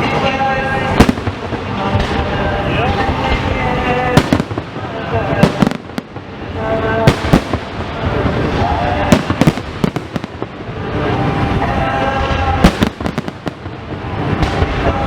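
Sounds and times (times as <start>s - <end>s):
continuous rumble: 0.0s - 15.0s
fireworks bursting: 0.0s - 15.0s.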